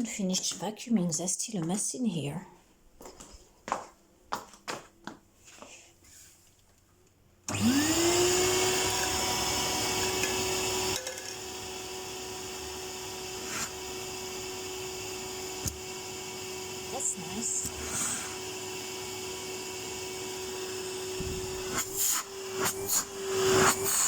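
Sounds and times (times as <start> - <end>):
vacuum cleaner running: 7.5 - 24.0.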